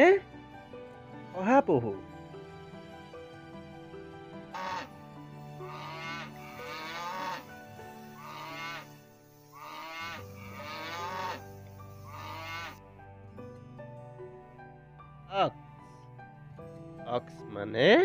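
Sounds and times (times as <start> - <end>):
soft music bed: 0.0 - 18.0
cattle mooing: 4.6 - 4.8, 5.7 - 7.5, 8.2 - 9.0, 9.6 - 11.5, 12.1 - 12.8.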